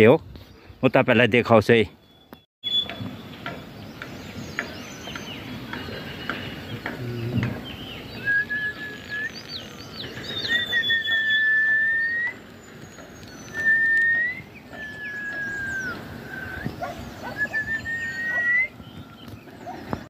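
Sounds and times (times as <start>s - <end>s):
short high bird chirps: 2.0s - 3.3s, 7.8s - 19.1s
bird whistled notes: 2.0s - 3.4s, 7.7s - 19.9s.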